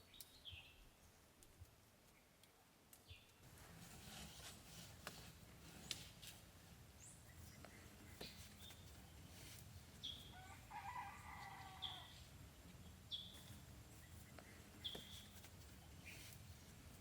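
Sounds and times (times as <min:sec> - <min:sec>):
faint rooster crowing: 0:10.2 - 0:12.4.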